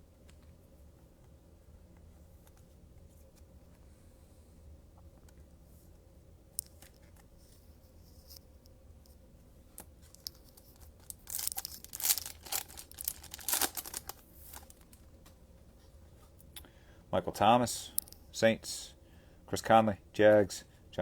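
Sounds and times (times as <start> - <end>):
wrapper tearing and crinkling: 10.1 - 15.0.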